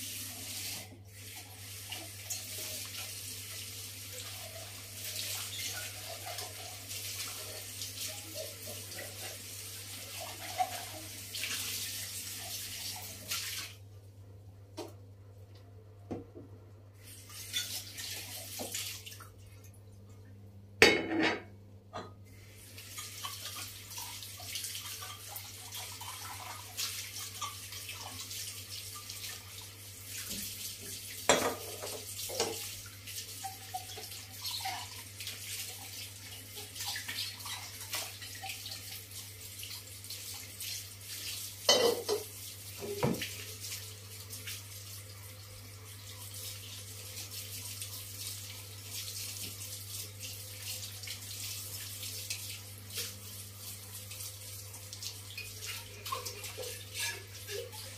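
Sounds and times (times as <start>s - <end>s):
dishes clinking: 20.8s - 22.2s, 31.3s - 32.6s, 41.7s - 42.3s, 56.3s - 57.8s
tap running into sink: 41.7s - 43.4s.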